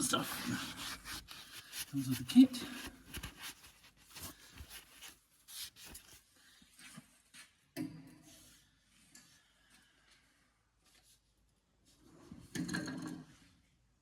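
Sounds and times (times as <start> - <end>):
cloth rubbing on metal: 0.0 - 6.3.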